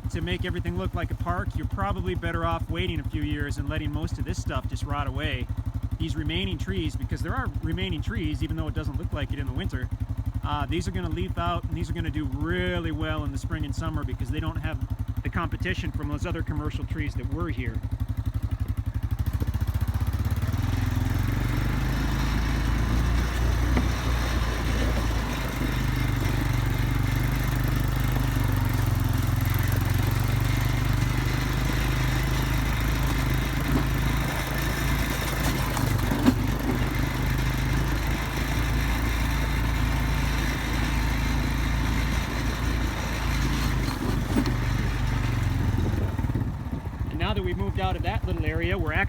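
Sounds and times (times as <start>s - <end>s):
vehicle engine hum: 0.0s - 49.0s
tyre and road noise: 17.8s - 48.8s.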